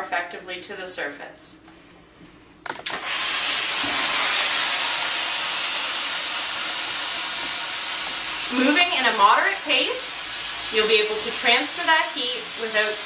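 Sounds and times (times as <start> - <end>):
steam cleaner clicks: 2.7 - 5.2
steam hissing: 2.9 - 13.0.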